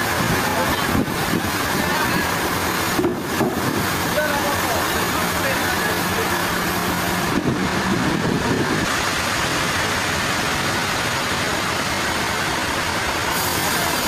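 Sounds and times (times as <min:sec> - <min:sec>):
sawmill machinery drone: 0:00.0 - 0:14.0.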